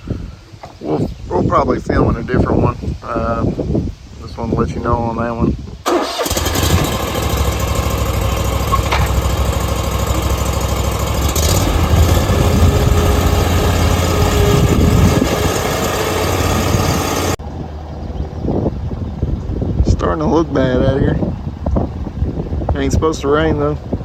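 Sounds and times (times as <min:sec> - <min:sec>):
lawn mower engine running: 0:05.9 - 0:17.4.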